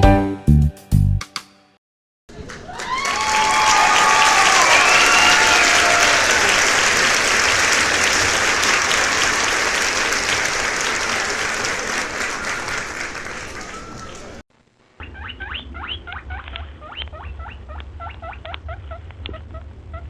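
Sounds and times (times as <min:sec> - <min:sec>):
crowd applause: 0:02.3 - 0:14.4
faint whistles: 0:11.9 - 0:14.4.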